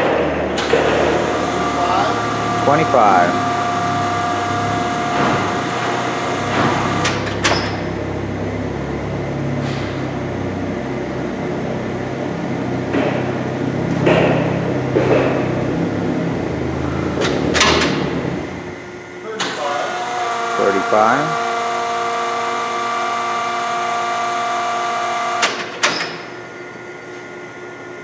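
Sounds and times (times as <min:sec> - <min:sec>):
lathe motor humming: 0:00.6 - 0:08.0, 0:16.4 - 0:25.8.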